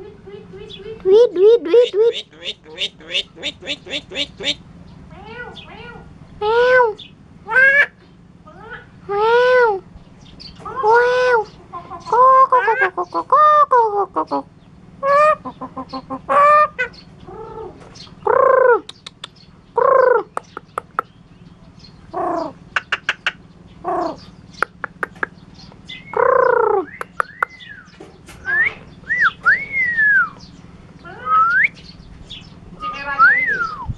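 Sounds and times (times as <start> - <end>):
bird rapid clicking: 18.5 - 21.2, 22.7 - 23.4, 24.5 - 27.7
bird rising whistles: 26.8 - 30.4, 31.3 - 31.8, 32.8 - 33.9.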